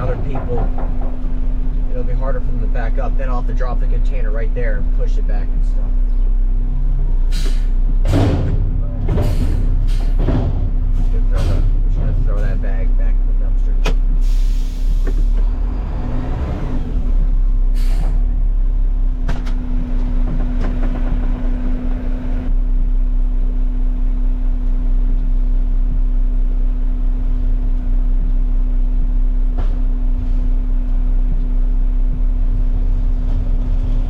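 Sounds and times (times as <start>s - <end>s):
diesel engine droning: 0.0s - 34.0s
air brake hiss: 7.3s - 7.8s, 14.2s - 15.3s, 17.8s - 18.2s.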